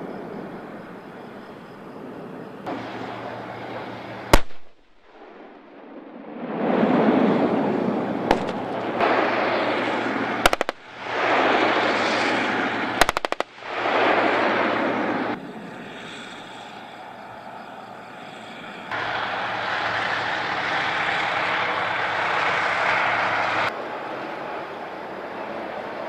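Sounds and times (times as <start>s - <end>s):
gunshots: 4.3s - 5.8s, 8.2s - 15.4s
loud rushing noise: 5.5s - 15.9s.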